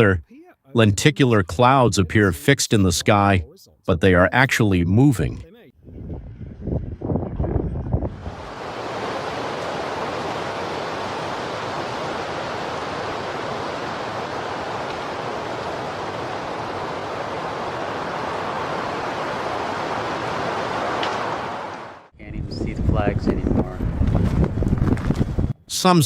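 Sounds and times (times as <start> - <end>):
wind on microphone: 5.8 - 12.3, 22.2 - 25.6.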